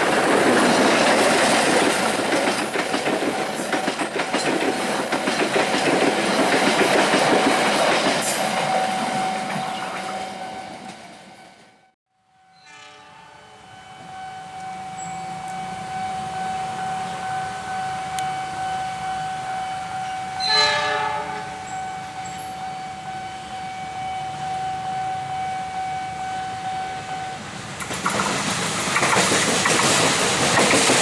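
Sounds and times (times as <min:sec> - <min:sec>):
train passing and rattling: 0:00.0 - 0:12.0, 0:12.8 - 0:31.0
train horn blast: 0:08.4 - 0:27.6.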